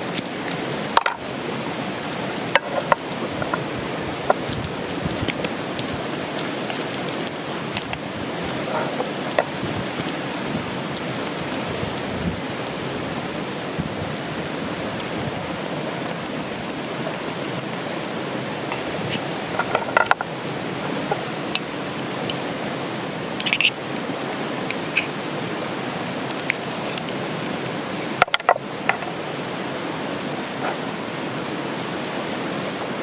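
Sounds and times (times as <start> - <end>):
flowing river: 0.0 - 33.0
camp gear clicking and clinking: 0.1 - 1.3, 2.6 - 4.5, 14.8 - 17.9, 18.7 - 20.3, 23.4 - 23.8, 28.2 - 29.1.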